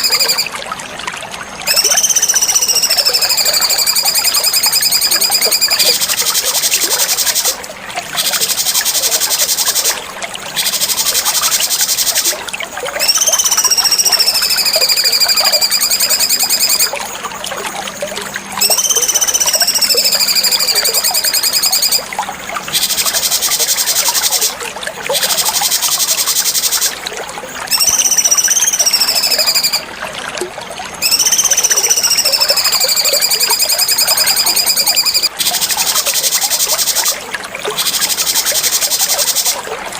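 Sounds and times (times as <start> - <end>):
bird slurred whistles: 1.7 - 7.5, 13.0 - 16.9, 18.6 - 22.0, 27.7 - 29.8, 31.0 - 37.2.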